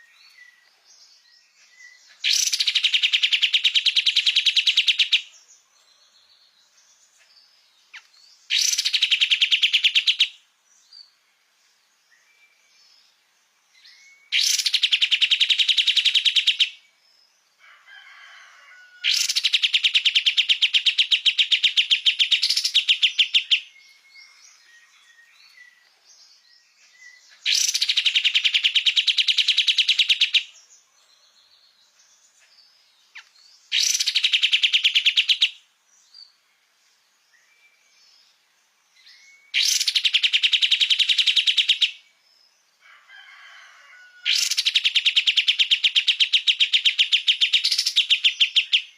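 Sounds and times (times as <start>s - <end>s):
songbird chattering: 1.6s - 5.3s, 7.1s - 10.4s, 13.9s - 16.8s, 19.1s - 25.8s, 26.9s - 30.7s, 33.1s - 35.6s, 39.5s - 42.0s, 44.3s - 48.9s.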